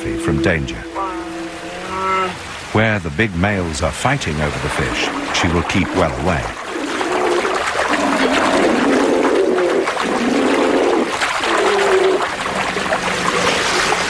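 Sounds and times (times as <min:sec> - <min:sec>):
bears moaning and growling: 0:00.0 - 0:02.4
rushing river water: 0:00.0 - 0:14.0.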